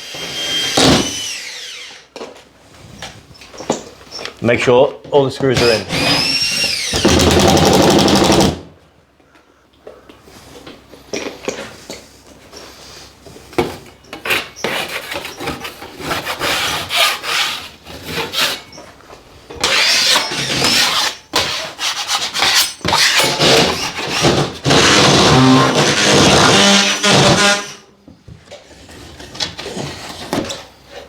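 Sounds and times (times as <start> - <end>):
blade scraping plasterboard: 13.6 - 18.8, 19.6 - 27.8, 28.7 - 31.0.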